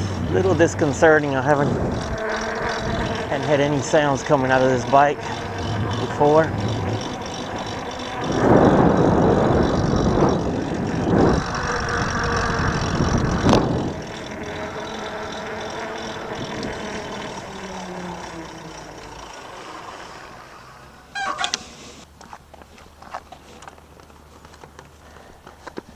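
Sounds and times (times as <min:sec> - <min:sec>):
wind buffeting microphone: 0:00.0 - 0:18.4
tyres rolling on path: 0:00.0 - 0:25.9.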